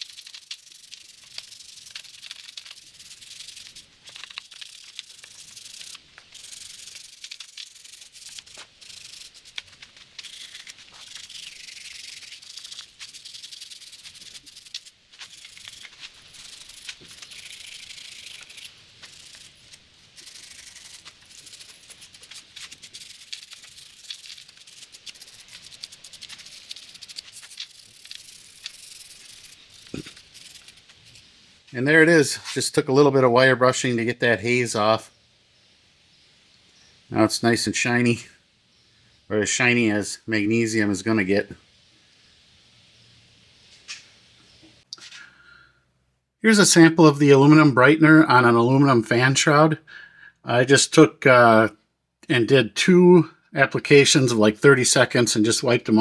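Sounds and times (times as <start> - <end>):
wire brush scrubbing metal: 0.0 - 31.4.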